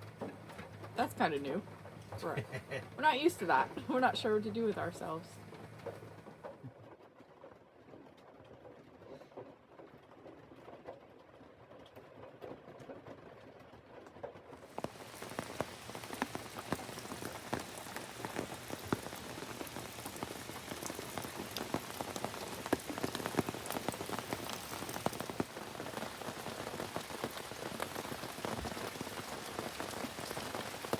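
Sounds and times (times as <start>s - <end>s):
rain falling: 0.0s - 13.4s, 14.6s - 30.9s.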